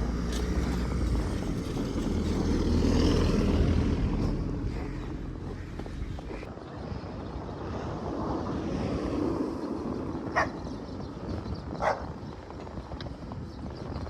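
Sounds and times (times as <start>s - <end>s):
wind noise on microphone: 0.0s - 14.0s
dog barking: 10.3s - 10.6s, 11.8s - 12.1s.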